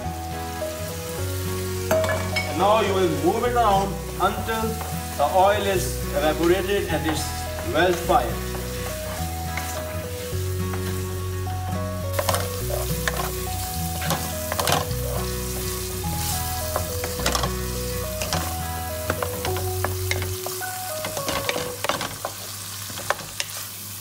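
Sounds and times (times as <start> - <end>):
background music: 0.0 - 22.2
food sizzling in a frying pan: 0.0 - 24.0
wooden spoon scraping a pan: 3.7 - 11.4, 12.1 - 23.6.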